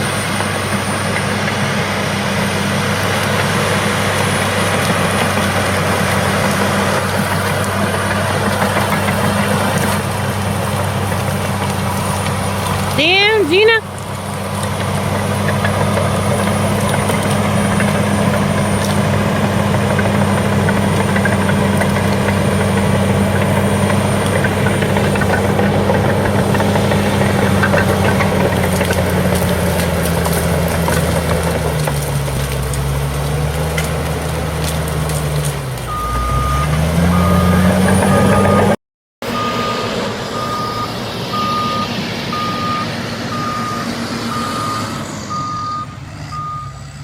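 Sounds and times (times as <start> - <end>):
bulldozer diesel engine: 0.0 - 47.0
reversing alarm beeping: 35.9 - 47.0.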